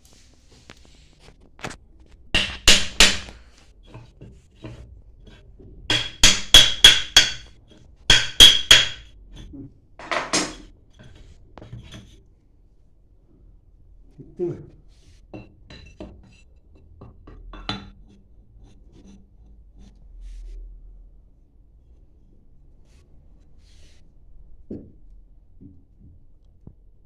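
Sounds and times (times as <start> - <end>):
hammer striking metal: 2.4 - 3.3, 5.9 - 7.5, 8.1 - 9.1.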